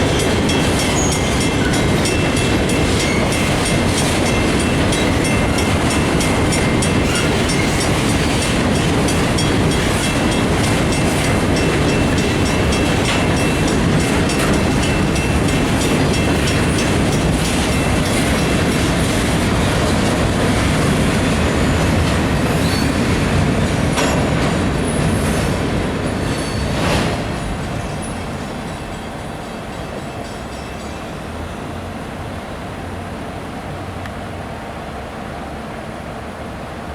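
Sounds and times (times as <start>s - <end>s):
wheels clicking over rail joints: 0.0s - 31.3s
freight train rumbling past: 0.0s - 36.9s
faint high squeal: 22.5s - 23.1s.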